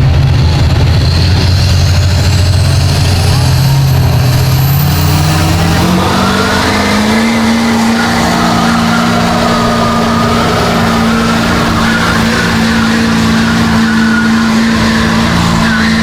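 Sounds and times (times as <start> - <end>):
truck engine at high revs: 0.0 - 16.0.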